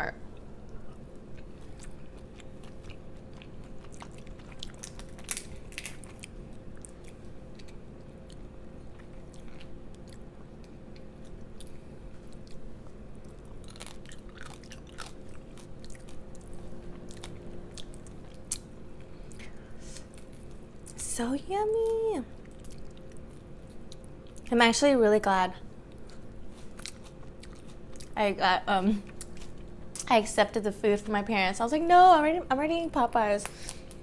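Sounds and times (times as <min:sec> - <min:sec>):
person chewing food: 0:00.3 - 0:21.0, 0:22.3 - 0:24.5, 0:25.8 - 0:28.2, 0:29.1 - 0:30.0.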